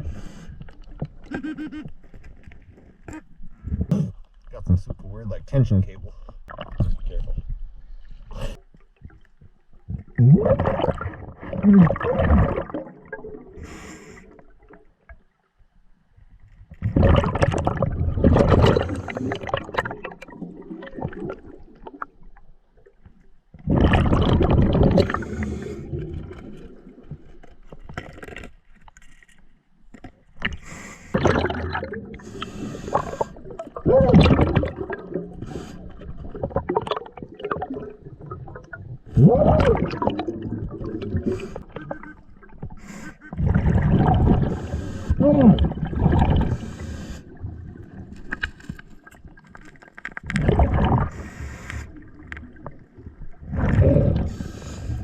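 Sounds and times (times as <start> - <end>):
exhaled bubbles rushing: 9.9 - 13.6, 16.8 - 22.2, 23.6 - 27.4, 31.2 - 48.4, 50.2 - 55.0
diver breathing through regulator: 13.6 - 14.4, 24.9 - 26.3, 30.5 - 31.2, 32.1 - 33.6, 35.4 - 36.2, 41.2 - 41.7, 42.6 - 43.4, 44.3 - 45.2, 46.4 - 47.4, 51.0 - 52.0, 53.7 - 55.0.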